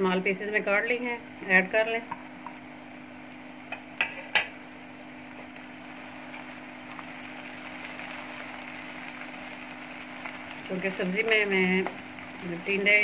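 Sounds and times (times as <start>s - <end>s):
low steady hum: 0.0s - 13.0s
onions sizzling in hot oil: 0.6s - 13.0s.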